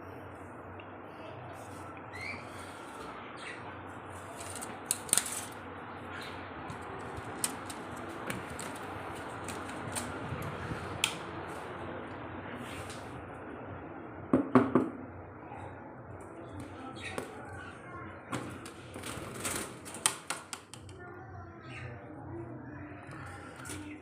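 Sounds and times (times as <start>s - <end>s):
sharp clicks and taps: 20.0s - 21.0s.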